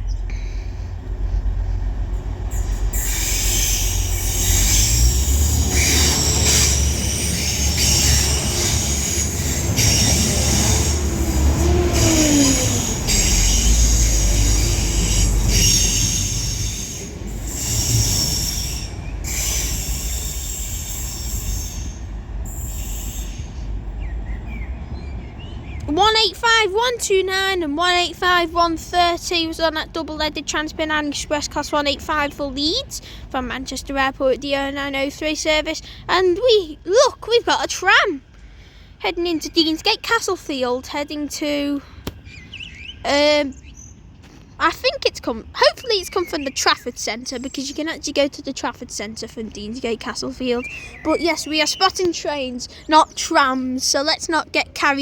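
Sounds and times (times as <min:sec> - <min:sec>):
train engines rumbling: 0:00.0 - 0:55.0
wheel squeal: 0:02.5 - 0:23.7.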